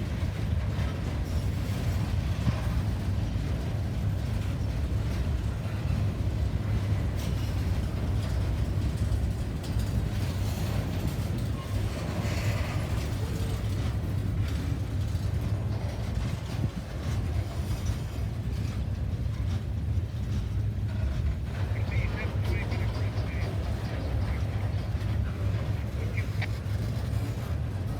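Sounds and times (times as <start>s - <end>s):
rail cars clicking and rattling: 0.0s - 27.9s
train rumbling by: 0.0s - 27.9s.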